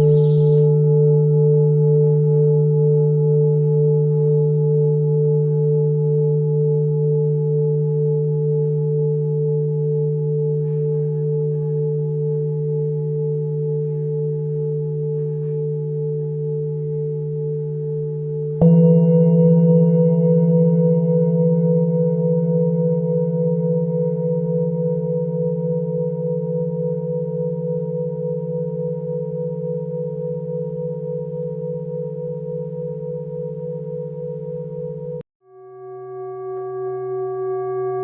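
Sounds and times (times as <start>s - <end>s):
singing bowl struck: 0.0s - 8.9s, 17.9s - 35.2s
singing bowl ringing: 0.0s - 38.0s.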